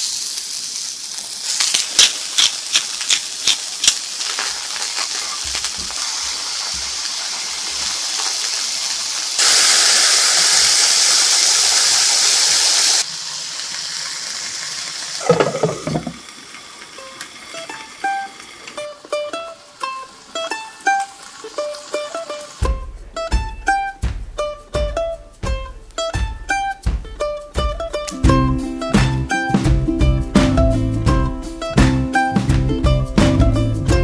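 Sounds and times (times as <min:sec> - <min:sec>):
mushrooms sizzling in a frying pan: 0:00.0 - 0:29.0
light plucked music: 0:17.0 - 0:34.0.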